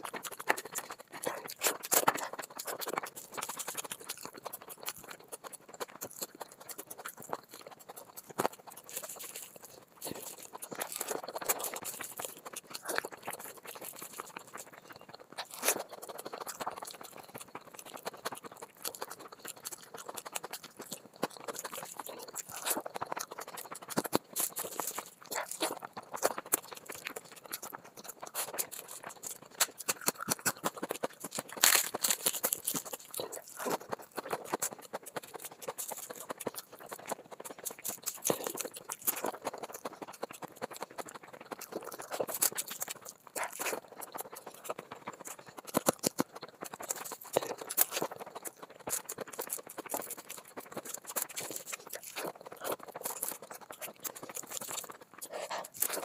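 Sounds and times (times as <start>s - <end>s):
wet chewing and mouth smacking: 0.0s - 56.0s
quick clicks and crackles: 21.8s - 56.0s.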